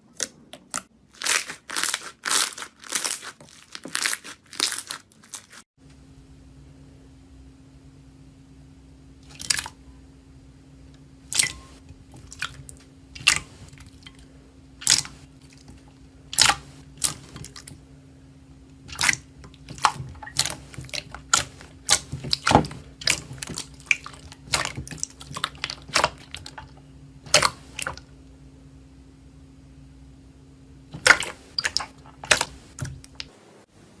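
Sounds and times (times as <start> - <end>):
low steady hum: 5.8 - 34.0.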